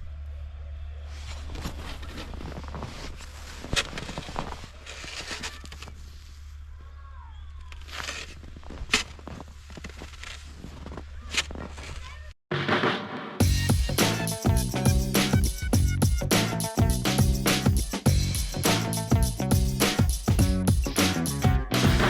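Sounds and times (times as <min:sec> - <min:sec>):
footsteps crunching on icy snow: 0:01.2 - 0:06.5, 0:07.7 - 0:12.0
music: 0:12.5 - 0:22.0.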